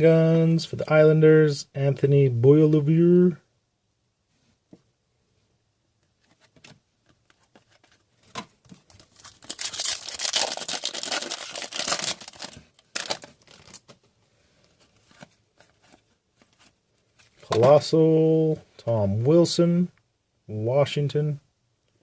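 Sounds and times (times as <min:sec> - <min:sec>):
cards being handled: 0:06.0 - 0:17.8
plastic wrapper tearing and crinkling: 0:08.9 - 0:14.0.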